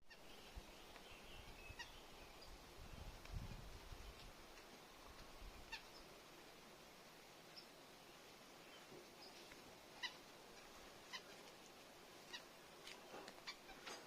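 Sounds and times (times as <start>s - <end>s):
faint high bird calls: 0.1s - 2.6s, 5.7s - 6.1s, 8.6s - 10.3s, 11.0s - 11.6s, 12.2s - 12.6s, 13.3s - 14.0s.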